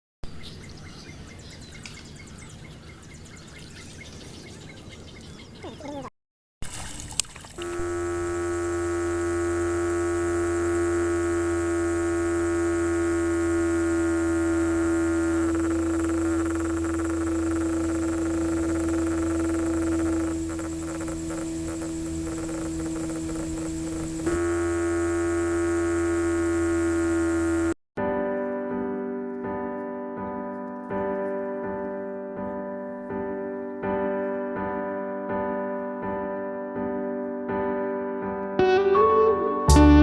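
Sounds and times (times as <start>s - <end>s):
small motor humming: 7.6s - 27.8s.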